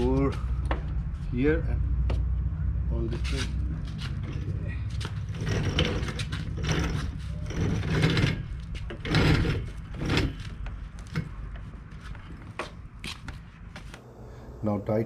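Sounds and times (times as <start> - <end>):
sliding door rolling and scraping: 3.2 - 11.5.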